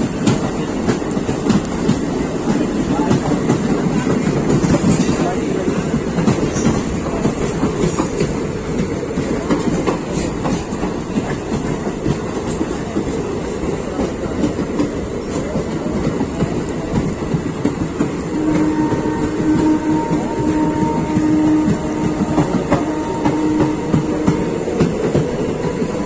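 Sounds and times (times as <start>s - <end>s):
train wheels rumbling and clattering: 0.0s - 26.0s.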